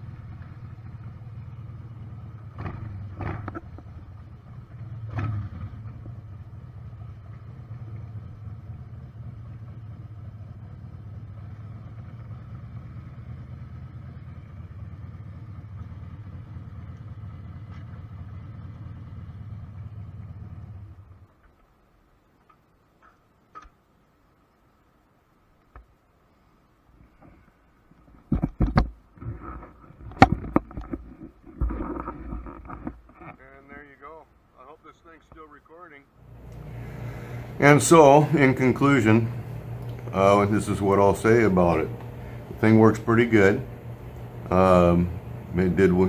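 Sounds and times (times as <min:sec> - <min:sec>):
motorcycle engine idling: 0:00.0 - 0:21.4, 0:36.2 - 0:46.0.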